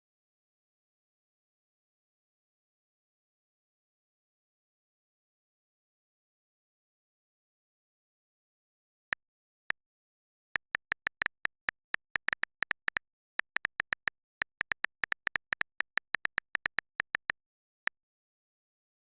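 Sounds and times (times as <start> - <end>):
sharp clicks: 10.6 - 17.4.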